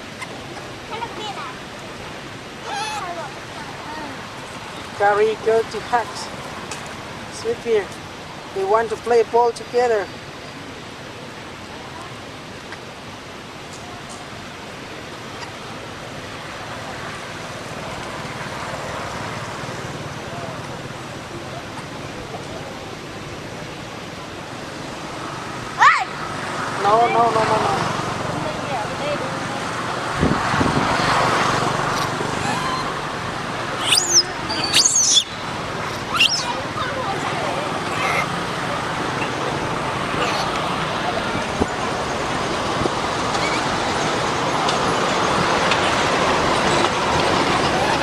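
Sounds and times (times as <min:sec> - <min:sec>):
steady background hiss: 0:00.0 - 0:48.0
monkey squealing: 0:02.6 - 0:03.2, 0:32.3 - 0:33.0, 0:33.8 - 0:36.6, 0:37.8 - 0:38.4, 0:43.4 - 0:43.6
outdoor rushing noise: 0:10.0 - 0:48.0.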